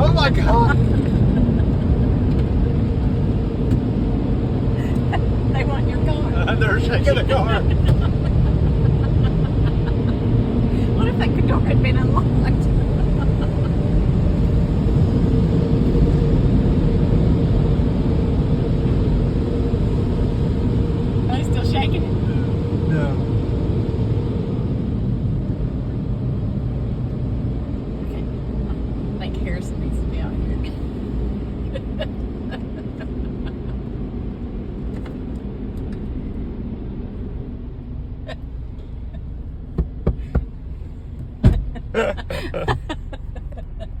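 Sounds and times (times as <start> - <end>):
car wash machinery rumbling: 0.0 - 44.0.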